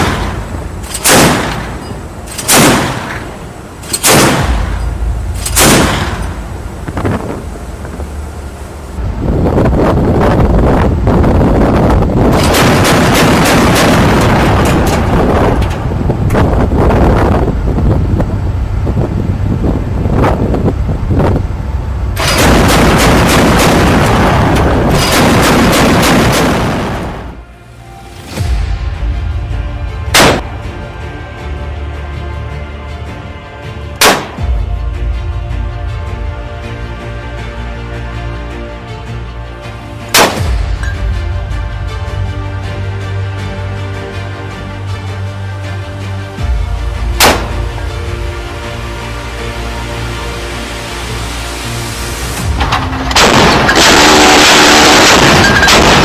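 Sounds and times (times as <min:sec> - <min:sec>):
rapid gunfire: 0:00.0 - 0:03.3, 0:03.9 - 0:04.8, 0:12.4 - 0:14.6, 0:22.2 - 0:27.2, 0:47.2 - 0:47.7, 0:52.7 - 0:56.0
deck gun shots: 0:00.0 - 0:04.8, 0:34.0 - 0:34.6, 0:40.2 - 0:40.6, 0:47.2 - 0:47.7
machine gun shots: 0:00.0 - 0:04.8, 0:22.2 - 0:27.2, 0:47.2 - 0:47.7, 0:52.6 - 0:56.0
background music: 0:00.0 - 0:56.0
low rumble of wind: 0:00.0 - 0:56.0.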